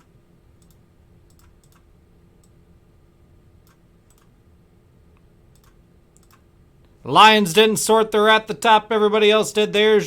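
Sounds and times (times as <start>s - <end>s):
keyboard and mouse clicks: 0.0s - 2.6s, 3.6s - 4.3s, 5.5s - 6.4s
steady low hum: 0.0s - 10.0s.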